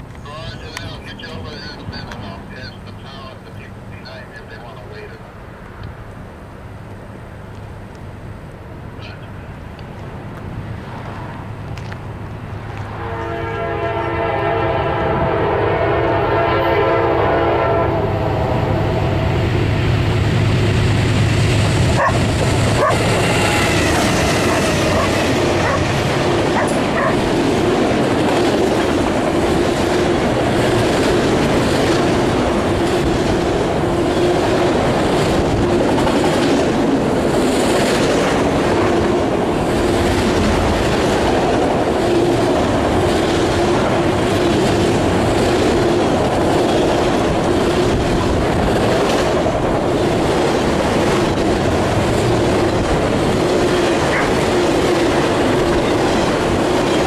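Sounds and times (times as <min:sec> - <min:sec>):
locomotive engines rumbling: 0:00.0 - 0:57.0
train air horn: 0:13.0 - 0:19.4
train wheels clickety-clack: 0:21.4 - 0:57.0.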